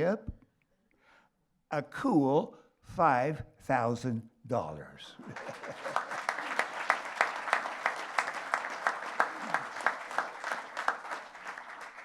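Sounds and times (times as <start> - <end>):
audience applauding: 5.2 - 12.0
nearby sharp claps: 5.3 - 12.0.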